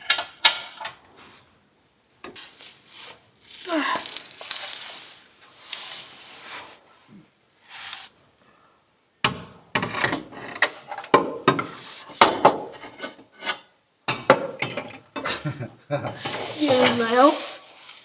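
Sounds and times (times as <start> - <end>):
metal parts scraping: 3.4 - 5.2.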